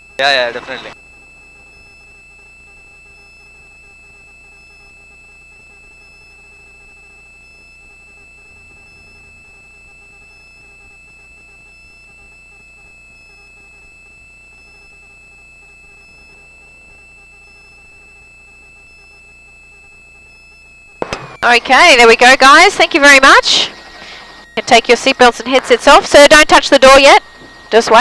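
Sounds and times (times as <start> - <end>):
high-pitched whine: 0.1 - 1.0, 6.0 - 28.0
low hum: 13.3 - 28.0.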